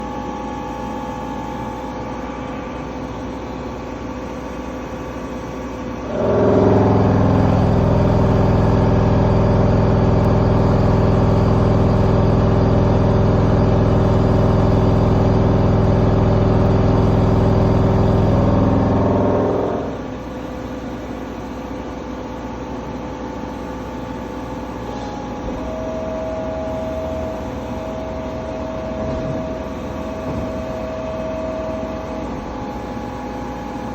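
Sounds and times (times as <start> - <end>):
background machine hum: 0.0 - 33.9
machine running loud: 6.0 - 20.2, 25.3 - 33.9.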